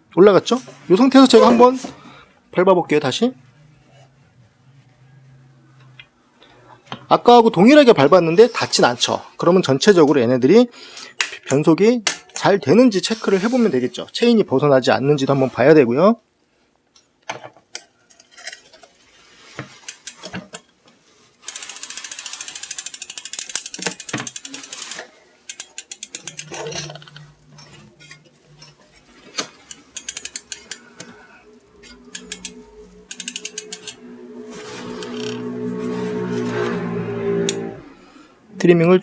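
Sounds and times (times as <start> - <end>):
bicycle freehub ratchet clicking: 21.4 - 27.2, 29.6 - 30.9, 31.8 - 34.0, 34.6 - 35.5
bicycle chain clicks and knocks: 21.4 - 27.3, 29.3 - 30.9, 31.8 - 34.0, 34.6 - 35.5.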